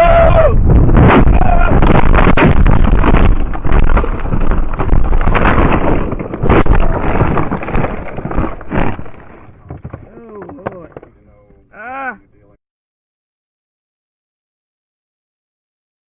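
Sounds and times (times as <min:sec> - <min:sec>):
distorted wind rumbling on microphone: 0:00.0 - 0:12.6.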